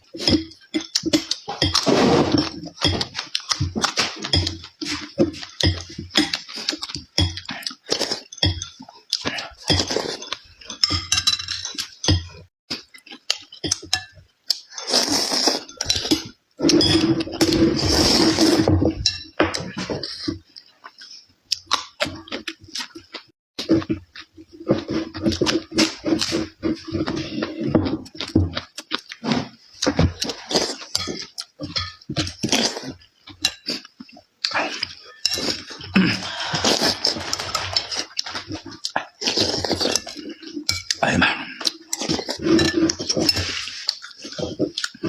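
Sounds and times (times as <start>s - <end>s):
chewing: 0.1s - 18.7s, 19.6s - 45.0s
utensils clinking on dishes: 0.1s - 20.4s, 29.3s - 33.8s, 34.5s - 45.0s.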